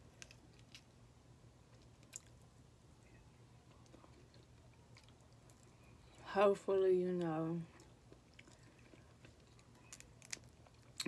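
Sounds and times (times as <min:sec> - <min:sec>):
person chewing: 0:07.8 - 0:11.0.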